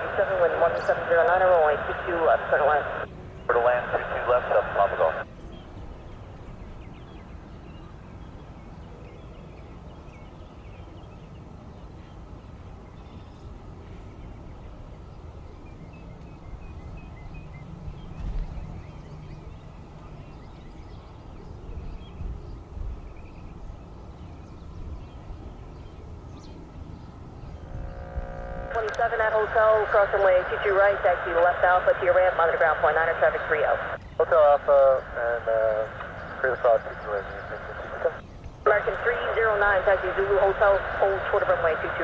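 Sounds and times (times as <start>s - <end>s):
low outdoor rumble: 0.0s - 5.2s, 26.9s - 42.0s
small birds chirping: 25.7s - 42.0s.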